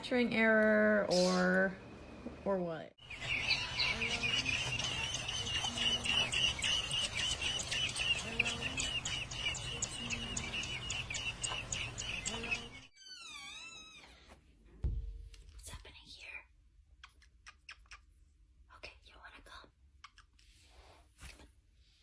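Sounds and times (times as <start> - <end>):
small bird chirping: 1.1 - 1.8, 3.0 - 12.9.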